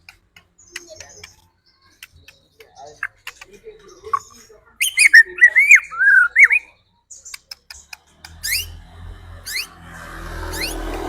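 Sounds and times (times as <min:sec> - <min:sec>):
sharp clicks: 0:00.0 - 0:01.4
bird singing swooping whistles: 0:04.8 - 0:06.7, 0:08.4 - 0:08.8, 0:09.5 - 0:09.8, 0:10.5 - 0:11.0.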